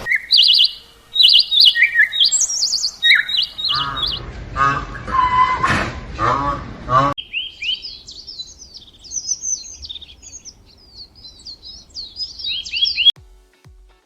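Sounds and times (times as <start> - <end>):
small birds chirping: 0.0 - 5.4, 7.0 - 13.2
music with steady low beat: 13.2 - 14.0.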